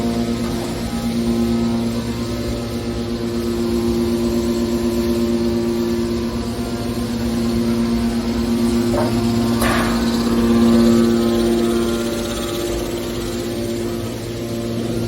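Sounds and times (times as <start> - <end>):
hydraulic power unit humming: 0.0 - 15.0.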